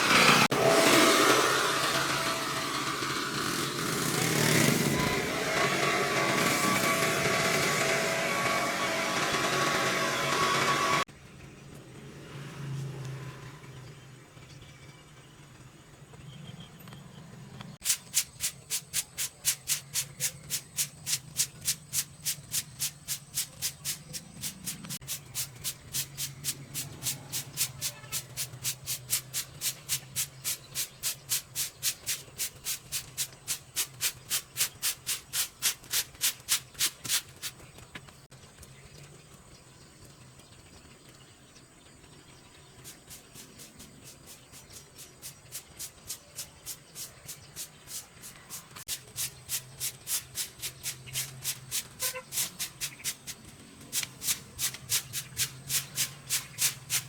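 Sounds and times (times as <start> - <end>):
rhythmic scraping strokes: 17.8 - 37.7, 42.8 - 57.0.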